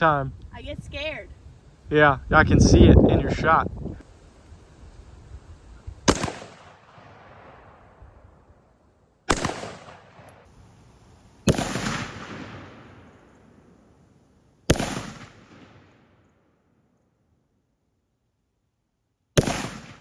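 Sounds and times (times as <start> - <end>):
gunshots with echo: 6.1 - 7.5, 9.3 - 10.3, 11.5 - 13.3, 14.7 - 16.0, 19.4 - 20.0.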